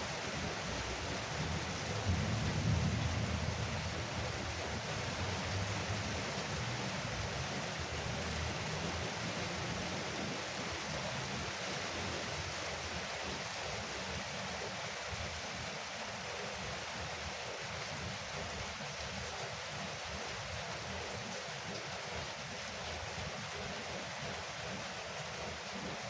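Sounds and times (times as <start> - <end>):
rain on a roof: 0.0 - 26.0
distant thunder rumble: 2.0 - 6.0.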